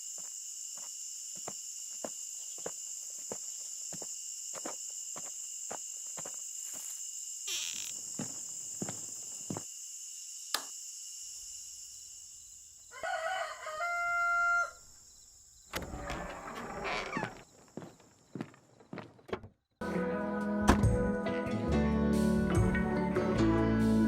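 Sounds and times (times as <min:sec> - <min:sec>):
high insect drone: 0:00.0 - 0:19.0
rooster crowing: 0:12.9 - 0:14.9.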